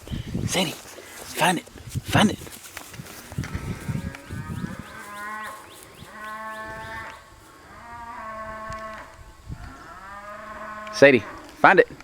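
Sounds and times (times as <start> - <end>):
distant cow bawling: 3.4 - 9.1.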